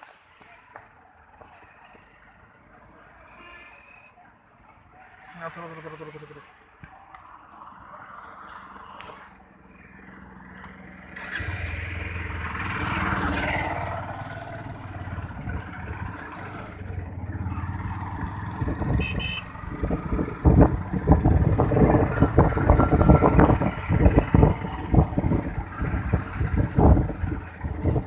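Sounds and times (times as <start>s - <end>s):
motorcycle engine running: 13.4s - 28.0s
wind buffeting microphone: 18.0s - 28.0s.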